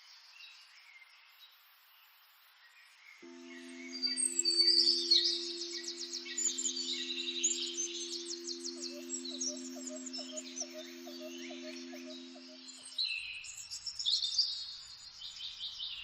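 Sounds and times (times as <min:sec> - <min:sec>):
birds chirping: 0:03.3 - 0:12.9
low hum: 0:03.3 - 0:12.9.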